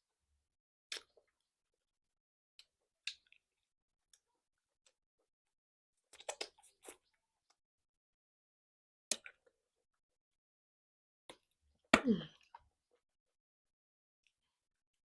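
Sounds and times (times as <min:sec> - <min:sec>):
mouth clicks and smacks: 0:06.1 - 0:07.0.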